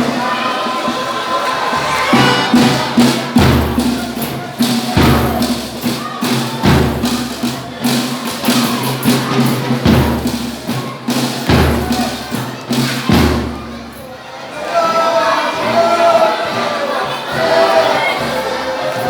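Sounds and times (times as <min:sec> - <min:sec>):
folk band playing: 0:00.2 - 0:07.8.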